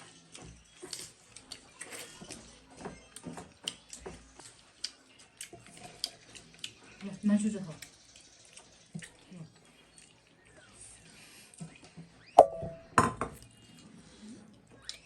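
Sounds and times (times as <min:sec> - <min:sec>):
crunchy chewing: 0:00.8 - 0:07.0, 0:07.8 - 0:10.8.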